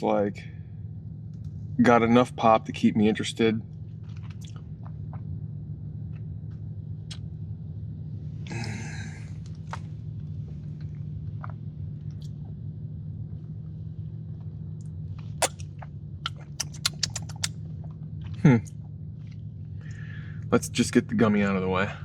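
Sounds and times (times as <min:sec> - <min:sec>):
steady low hum: 0:00.0 - 0:17.5
person chewing cookie: 0:16.6 - 0:17.5
wet mouth clicks: 0:16.6 - 0:17.5.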